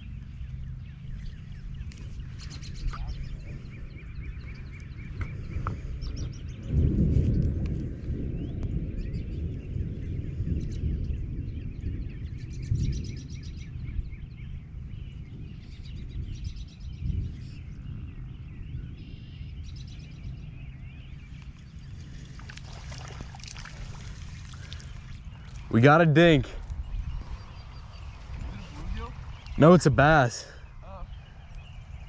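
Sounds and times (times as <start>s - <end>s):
birds calling: 0.0s - 6.7s, 8.7s - 32.0s
low rumble: 0.0s - 32.0s.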